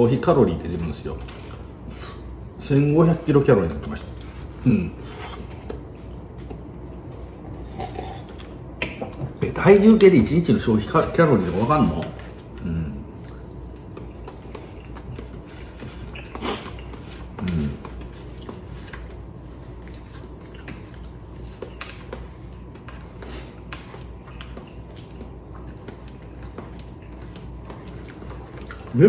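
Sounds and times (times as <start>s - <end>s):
man chewing: 12.2s - 29.0s.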